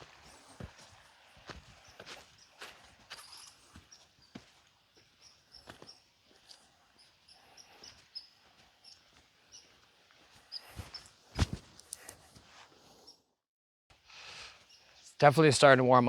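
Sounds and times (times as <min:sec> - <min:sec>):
soft footsteps on riverbed: 0:00.0 - 0:12.7.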